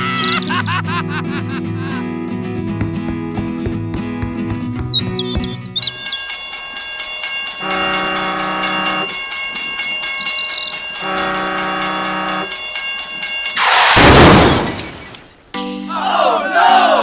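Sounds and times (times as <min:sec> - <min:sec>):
train clickety-clack on rails: 0:02.4 - 0:05.6
train horn blasts: 0:07.6 - 0:09.1, 0:11.0 - 0:12.5.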